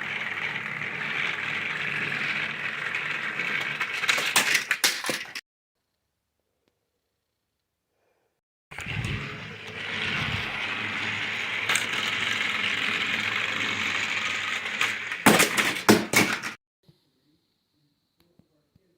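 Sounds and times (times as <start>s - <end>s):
toy train motor whirring: 0.0s - 5.3s, 8.8s - 16.5s.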